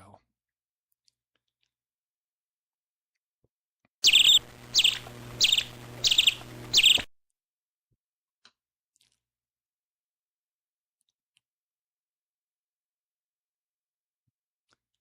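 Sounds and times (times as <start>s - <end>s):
bird calling: 4.0s - 7.1s
low hum: 4.0s - 7.1s.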